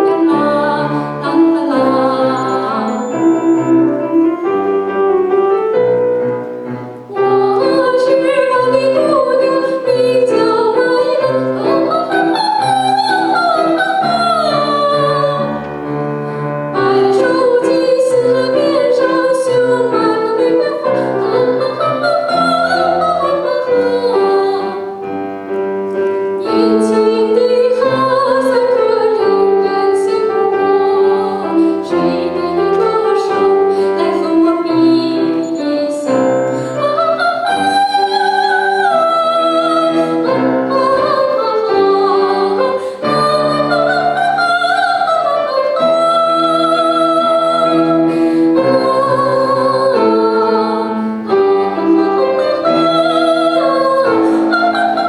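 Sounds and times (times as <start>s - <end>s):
operatic singing: 0.0s - 4.3s
piano accompaniment: 0.0s - 55.0s.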